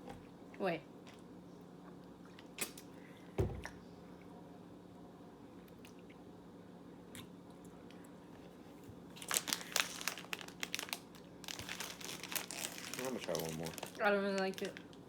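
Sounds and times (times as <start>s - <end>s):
plastic wrapper crinkling: 9.2s - 15.0s.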